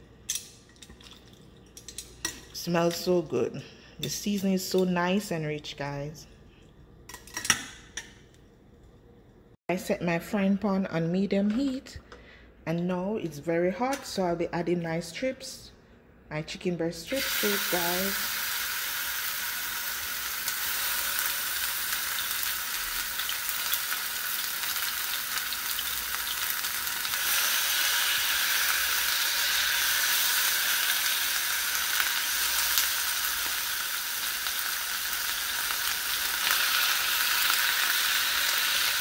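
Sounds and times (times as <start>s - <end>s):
chicken sizzling in hot oil: 17.1s - 39.0s.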